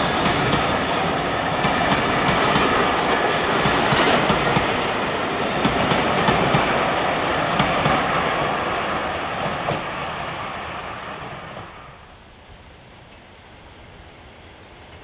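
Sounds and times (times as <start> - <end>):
train wheels clicking: 0.0 - 10.1
train carriages rolling on rails: 0.0 - 11.8.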